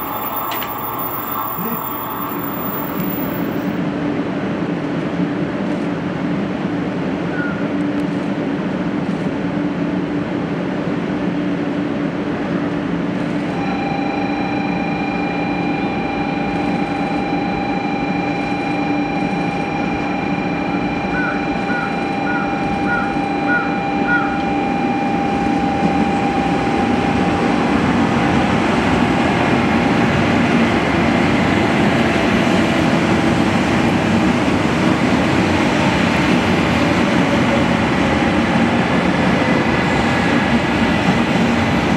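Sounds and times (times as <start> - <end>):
steady high tone: 0.0 - 3.9, 13.5 - 28.5
train rumble: 0.0 - 41.9.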